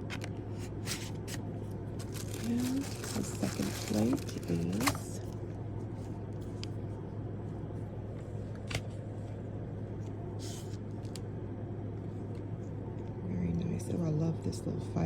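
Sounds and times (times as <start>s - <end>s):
low room hum: 0.0s - 15.0s
packaging rustle: 2.0s - 5.3s.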